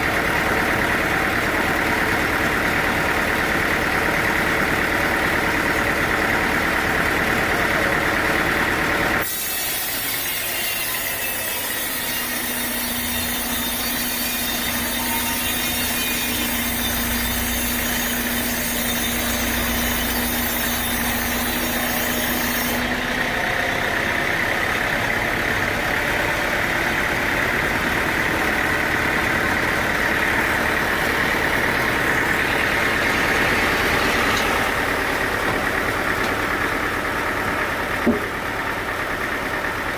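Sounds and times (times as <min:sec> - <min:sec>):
sawmill machinery droning: 0:00.0 - 0:39.9.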